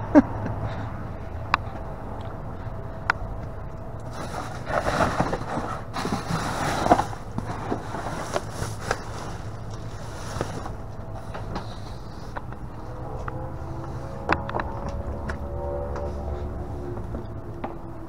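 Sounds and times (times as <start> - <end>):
steady low rumble: 0.0 - 18.0
objects rustling and clattering: 4.0 - 12.9.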